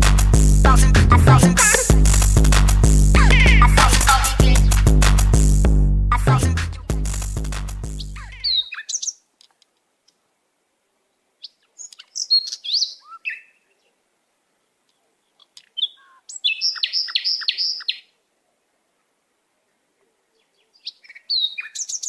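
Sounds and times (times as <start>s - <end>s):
music: 0.0s - 8.2s
birds chirping: 3.2s - 4.8s, 7.9s - 9.3s, 11.4s - 14.0s, 14.6s - 18.2s, 20.0s - 22.0s.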